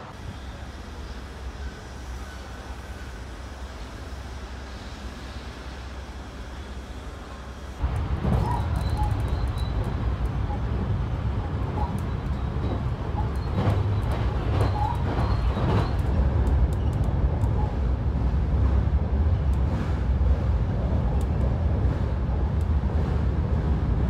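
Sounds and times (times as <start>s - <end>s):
train wheels rumbling on rails: 0.0s - 24.0s
faint clicks: 16.0s - 17.6s.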